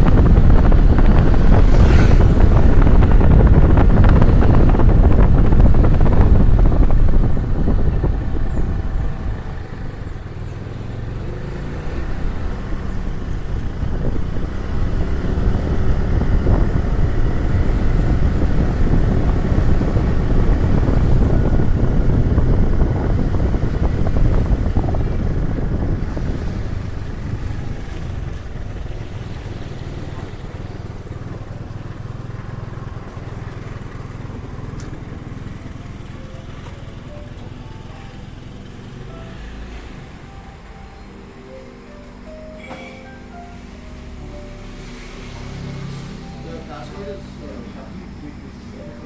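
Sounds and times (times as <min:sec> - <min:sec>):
wind buffeting microphone: 0:00.0 - 0:39.0
motorbike engine revving: 0:00.0 - 0:49.0.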